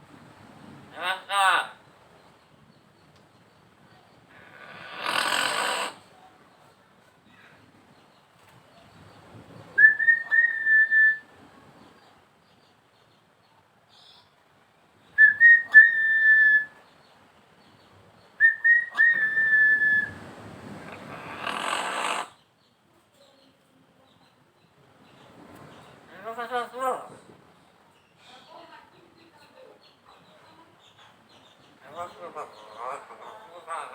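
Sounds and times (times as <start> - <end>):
rough raspy bird call: 4.3 - 6.1, 20.8 - 22.4
bird whistling: 9.8 - 11.2, 15.2 - 16.8, 18.4 - 20.2.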